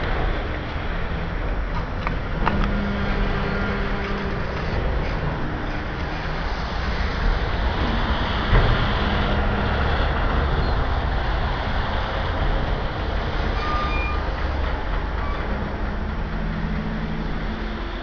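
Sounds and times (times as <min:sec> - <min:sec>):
steel wheels rumbling on rail: 0:00.0 - 0:18.0
short high squeal: 0:13.6 - 0:14.3.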